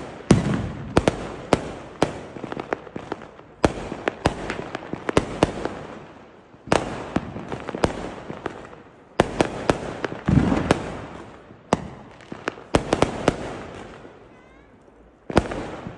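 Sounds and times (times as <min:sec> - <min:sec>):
firecracker bangs: 0:00.0 - 0:02.2, 0:09.2 - 0:11.2
fireworks crackle: 0:00.0 - 0:15.9.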